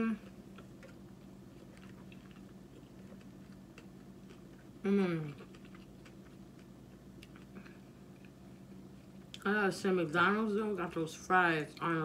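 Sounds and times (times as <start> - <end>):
person humming mmm: 0.0 - 0.4, 4.8 - 5.5
person chewing fries: 0.0 - 9.4
steady low hum: 0.0 - 12.0.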